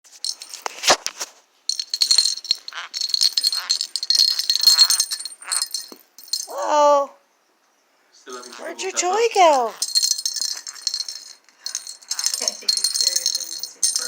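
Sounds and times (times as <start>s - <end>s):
small metal bell jingling: 0.1s - 1.0s, 1.7s - 6.9s, 8.3s - 14.0s.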